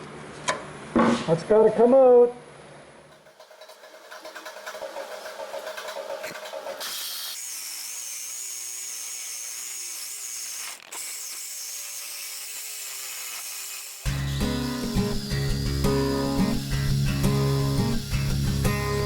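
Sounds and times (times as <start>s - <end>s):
power tool cutting sheet metal: 3.1s - 19.0s
loud music: 14.1s - 19.0s.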